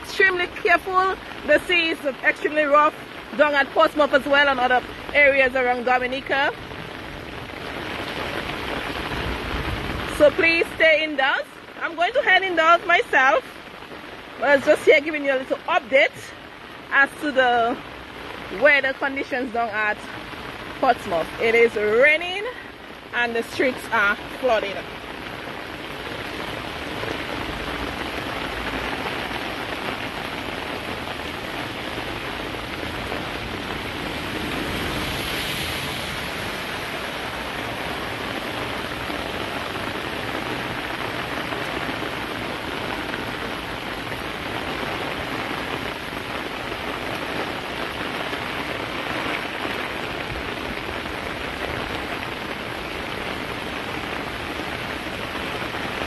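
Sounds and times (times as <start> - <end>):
steady heavy rain: 0.0 - 56.0.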